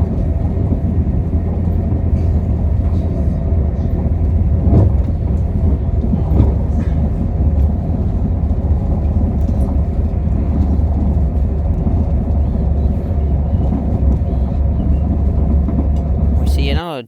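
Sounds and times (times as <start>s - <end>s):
train rumbling on board: 0.0s - 16.9s.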